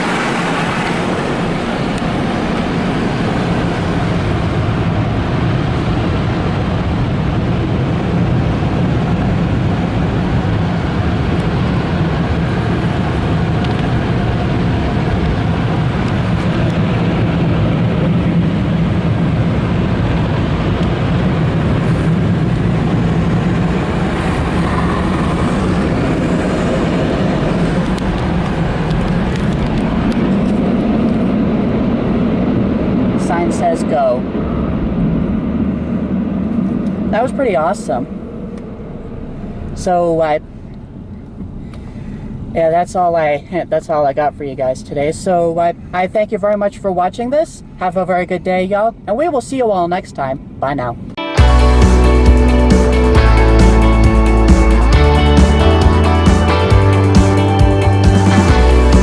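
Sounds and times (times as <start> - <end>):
car wash equipment running: 0.0 - 41.7.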